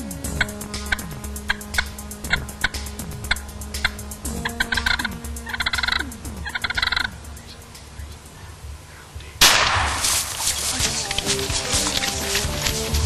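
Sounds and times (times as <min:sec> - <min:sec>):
turkey gobbling: 0:00.0 - 0:13.0
loud gunshot: 0:09.4 - 0:10.4.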